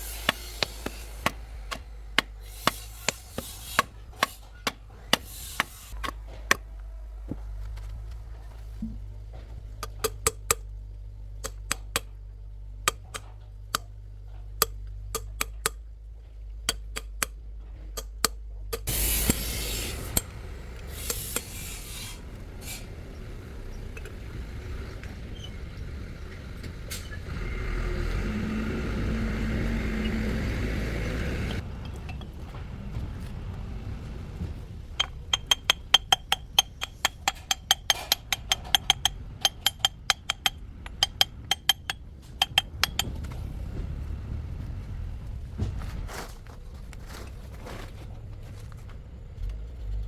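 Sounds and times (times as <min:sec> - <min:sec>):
steady rasping hiss: 0:00.0 - 0:06.0, 0:18.8 - 0:23.4
hand tools clinking on metal: 0:35.0 - 0:43.2.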